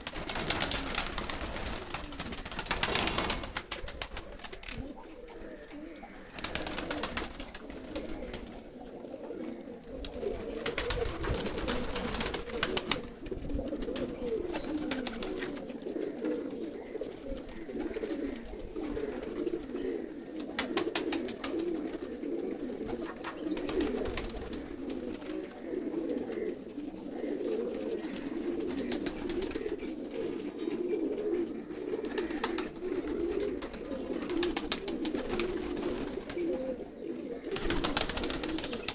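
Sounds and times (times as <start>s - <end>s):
pigeons cooing: 0.0s - 38.9s
clicking or rustling noise: 2.8s - 4.9s.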